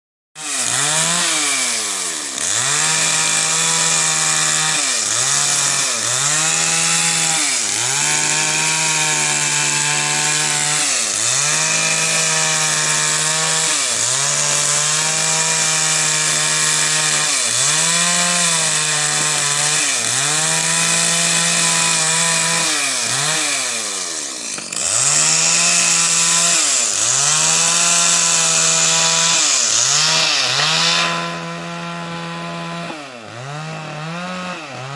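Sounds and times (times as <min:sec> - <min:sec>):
small high-revving engine: 0:00.4 - 0:34.9.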